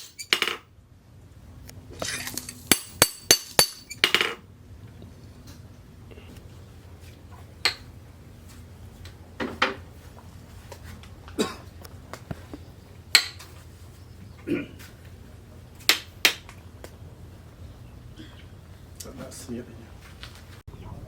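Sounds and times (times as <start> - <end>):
metal clinks and knocks: 0.0 - 0.6, 2.1 - 4.4
steady low hum: 0.0 - 21.0.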